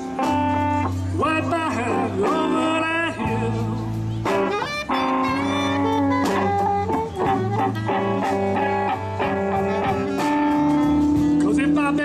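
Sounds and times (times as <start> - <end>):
live blues band: 0.0 - 12.0
saxophone: 3.8 - 11.4.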